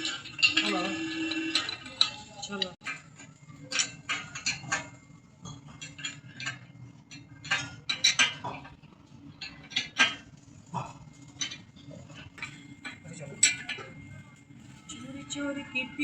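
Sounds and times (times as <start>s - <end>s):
metal tools clinking: 0.0s - 8.7s, 11.3s - 14.7s
low machinery hum: 0.0s - 16.0s.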